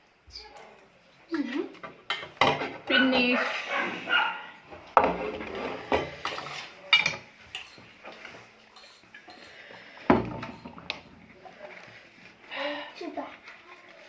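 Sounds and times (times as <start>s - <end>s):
plates and cutlery clinking: 1.7s - 4.0s, 4.7s - 12.2s.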